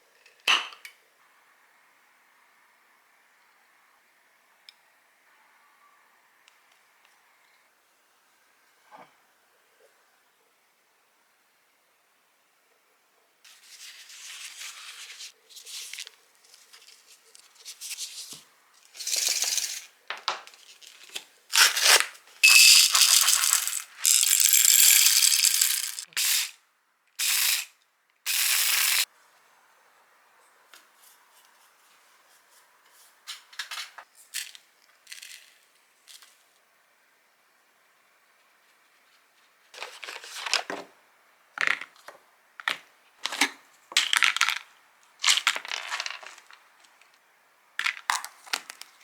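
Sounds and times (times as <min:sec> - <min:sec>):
plastic packaging crinkling: 0:20.6 - 0:26.2, 0:45.2 - 0:46.6, 0:47.8 - 0:49.0.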